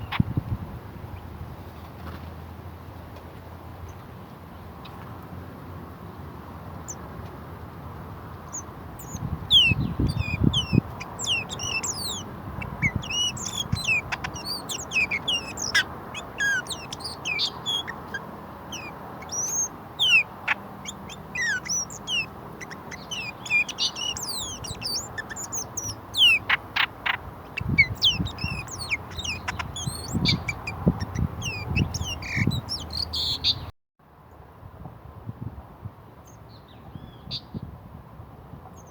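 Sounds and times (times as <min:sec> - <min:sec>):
small birds chirping: 0:08.2 - 0:33.7.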